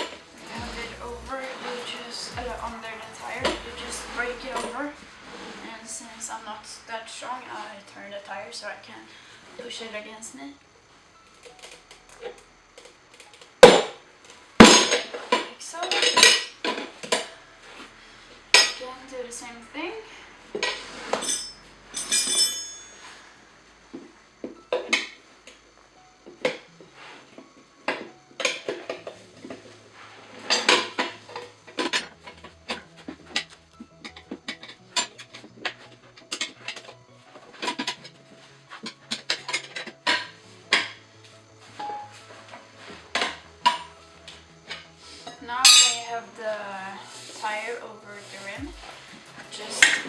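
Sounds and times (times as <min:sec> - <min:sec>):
tire irons clinking on wheel rim: 0:20.5 - 0:23.4, 0:45.7 - 0:46.2.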